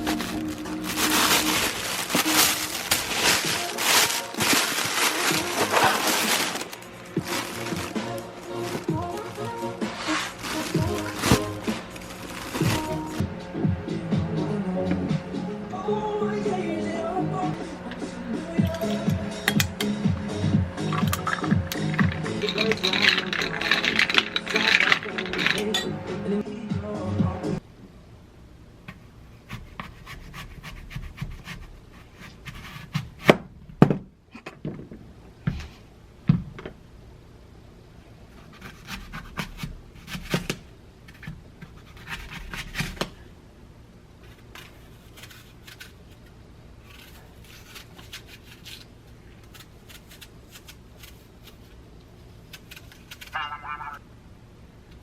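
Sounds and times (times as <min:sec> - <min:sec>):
objects clicking and knocking: 0:20.9 - 0:25.9.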